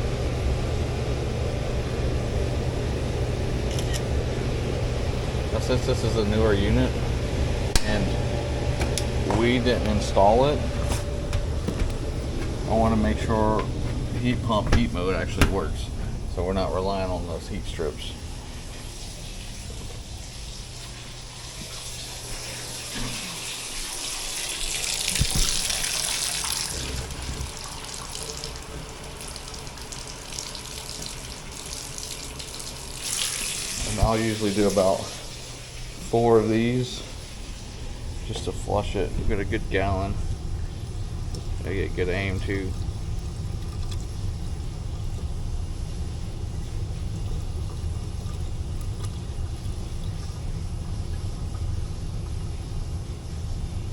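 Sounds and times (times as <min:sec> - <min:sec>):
air conditioner low rumble: 0:00.0 - 0:53.9
water running from a tap: 0:18.5 - 0:37.9.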